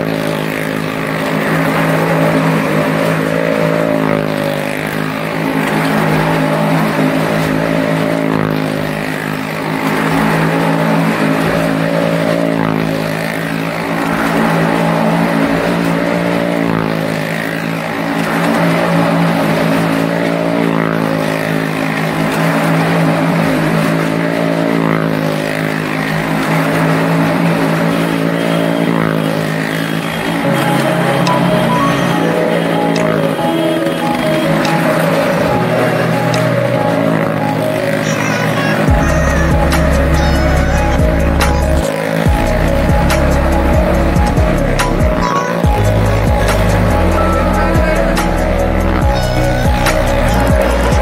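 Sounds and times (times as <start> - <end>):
car engine at high revs: 0.0 - 51.0
motorcycle engines at high revs: 0.0 - 51.0.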